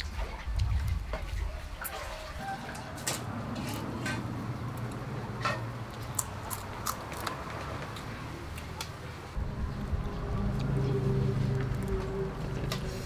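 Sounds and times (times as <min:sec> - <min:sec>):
crunching of fried fish fins: 0:05.8 - 0:08.8.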